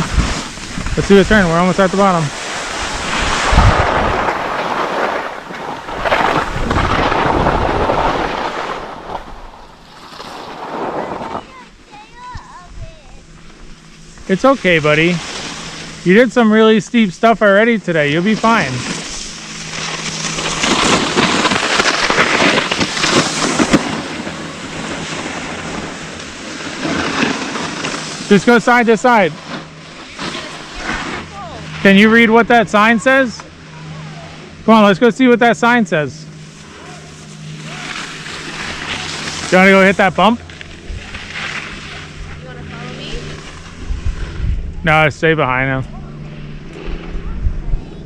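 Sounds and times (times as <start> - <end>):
wind rushing over microphone: 0.0 - 11.6, 38.5 - 48.0
skis scraping on snow: 0.0 - 33.4, 34.3 - 44.4.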